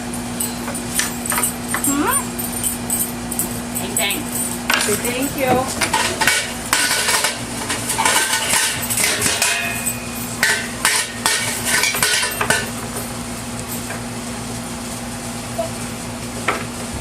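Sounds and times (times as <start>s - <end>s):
steady low hum: 0.0s - 17.0s
children banging metal objects: 0.4s - 12.7s.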